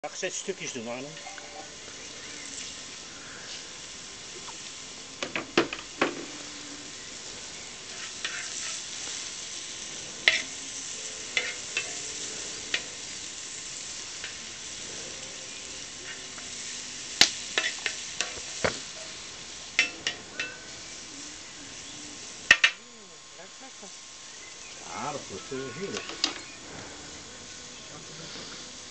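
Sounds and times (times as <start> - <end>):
food sizzling in a wok: 0.0 - 28.9
utensil scraping a metal pan: 7.9 - 8.8.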